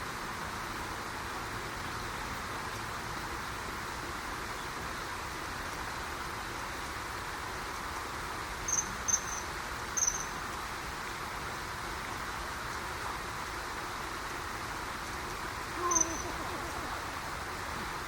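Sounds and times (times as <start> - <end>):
river rushing: 0.0 - 18.0
kingfisher shrill whistled calls: 15.8 - 16.4.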